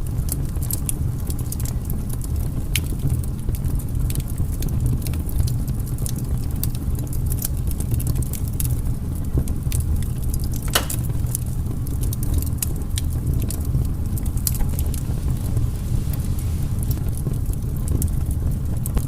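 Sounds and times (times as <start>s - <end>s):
fire rumbling: 0.0s - 19.0s
wood crackling and snapping: 0.2s - 19.0s
loud pop: 10.7s - 11.3s.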